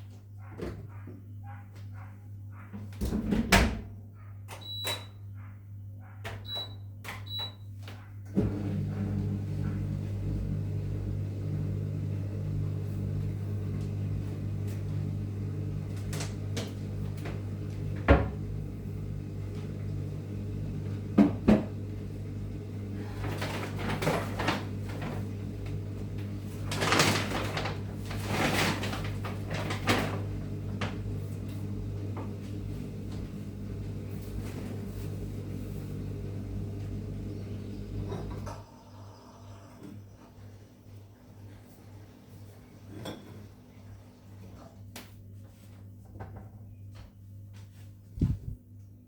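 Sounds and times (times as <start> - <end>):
low electrical hum: 21.9 - 49.0
rustling and scraping: 26.6 - 30.2.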